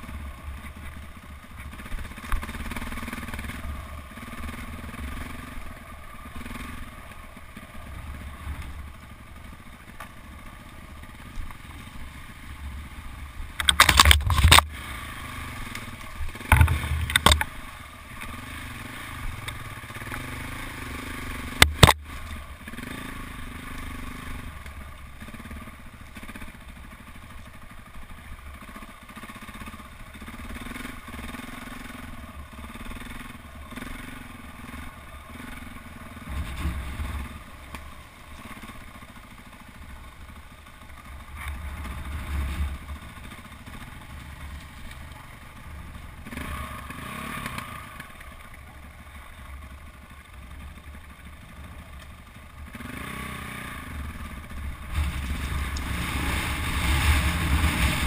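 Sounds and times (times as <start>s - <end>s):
motorcycle engine running: 0.0s - 58.0s
sharp clatter and knocking: 13.6s - 14.7s, 16.4s - 17.6s, 21.6s - 22.0s.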